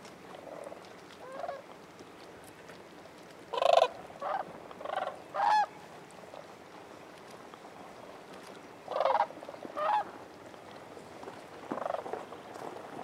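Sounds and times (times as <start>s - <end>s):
cranes rattling calls: 8.9s - 10.1s, 11.7s - 12.1s.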